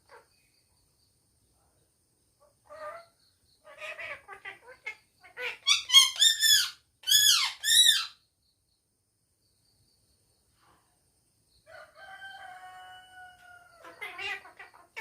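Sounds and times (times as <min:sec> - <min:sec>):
parrot squawking and chattering: 0:02.6 - 0:08.2, 0:13.8 - 0:15.0.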